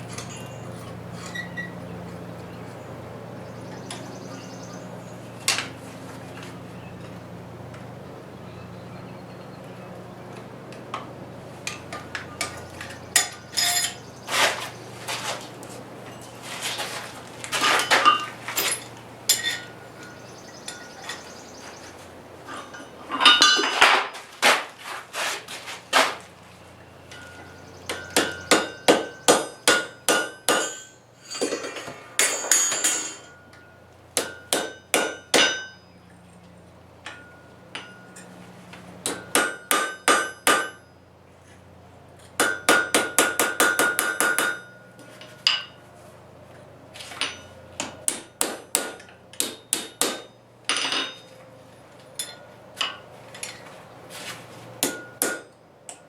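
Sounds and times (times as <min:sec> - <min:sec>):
hammer striking metal on anvil: 0:22.6 - 0:24.0, 0:27.1 - 0:35.9, 0:37.0 - 0:38.3, 0:39.0 - 0:40.9, 0:42.4 - 0:44.8, 0:47.2 - 0:51.3, 0:54.8 - 0:56.0.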